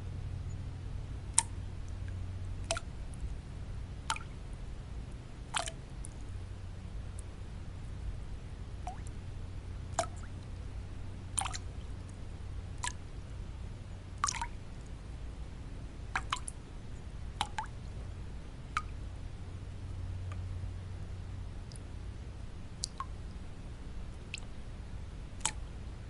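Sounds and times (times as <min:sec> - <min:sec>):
low white noise hum: 0:00.0 - 0:26.0
water drops dripping: 0:01.3 - 0:03.2, 0:04.0 - 0:04.4, 0:05.6 - 0:06.2, 0:08.8 - 0:09.1, 0:09.9 - 0:10.6, 0:11.4 - 0:11.8, 0:12.8 - 0:13.0, 0:14.2 - 0:14.9, 0:16.2 - 0:16.6, 0:17.4 - 0:17.8, 0:18.7 - 0:19.0, 0:20.3 - 0:20.5, 0:22.8 - 0:23.2, 0:24.2 - 0:24.5, 0:25.4 - 0:25.6.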